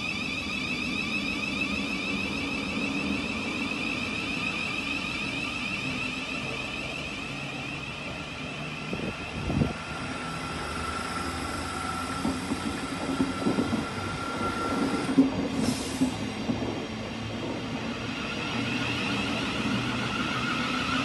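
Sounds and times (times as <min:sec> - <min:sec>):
steady high tone: 0:00.0 - 0:15.2
electric train running past: 0:00.0 - 0:21.0.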